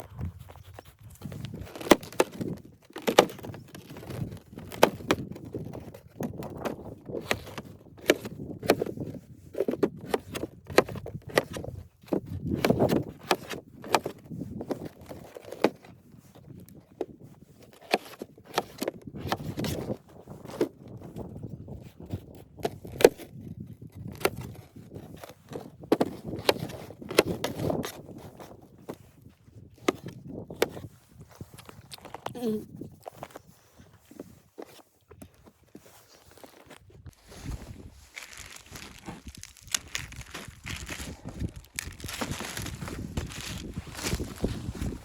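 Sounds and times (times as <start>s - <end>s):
rustling: 24.1s - 45.0s.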